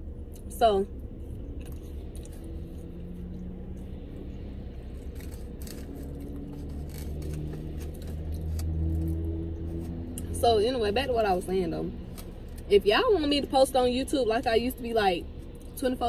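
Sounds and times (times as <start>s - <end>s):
low vehicle hum: 0.0s - 16.0s
chewing crispy fries: 1.2s - 10.3s.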